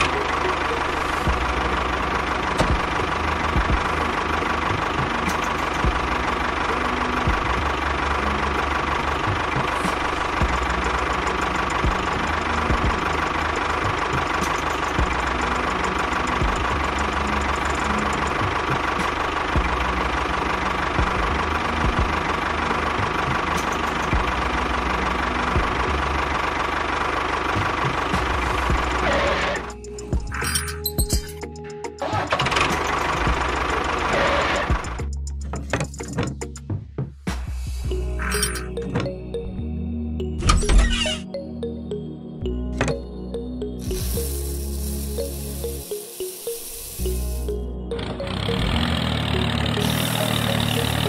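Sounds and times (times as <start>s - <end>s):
engine idling with knocking: 0.0s - 37.6s.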